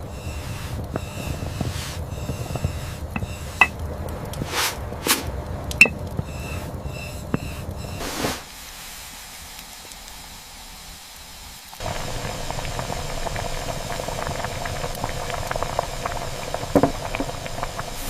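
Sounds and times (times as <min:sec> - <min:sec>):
low steady rumble: 0:00.0 - 0:08.0, 0:11.8 - 0:18.0
short swishes: 0:04.4 - 0:05.3.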